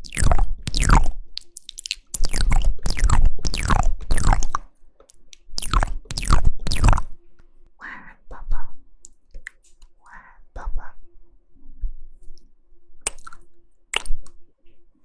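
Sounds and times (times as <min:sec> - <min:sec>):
lip smacks: 0:00.0 - 0:07.2, 0:13.0 - 0:14.3
wet tongue clicks: 0:00.0 - 0:07.2, 0:12.4 - 0:14.4.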